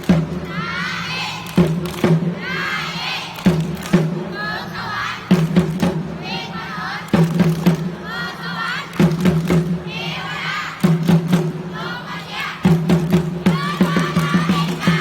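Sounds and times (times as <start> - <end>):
crowd shouting and chanting: 0.0 - 7.3, 8.0 - 9.2, 9.8 - 11.0, 11.6 - 15.0
drum beaten in bursts: 0.0 - 8.4, 9.0 - 15.0.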